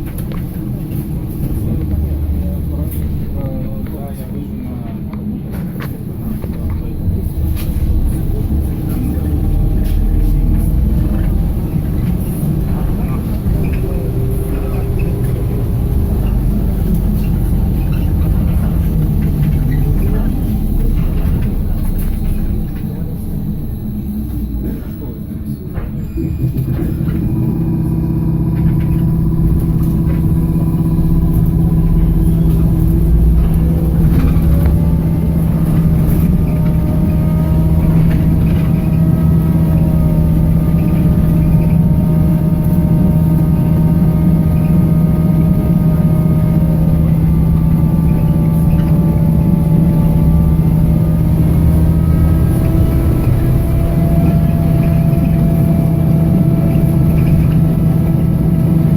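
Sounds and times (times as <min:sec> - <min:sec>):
trolleybus hum and road rumble: 0:00.0 - 0:58.9
electric traction drive whine: 0:26.4 - 0:58.9.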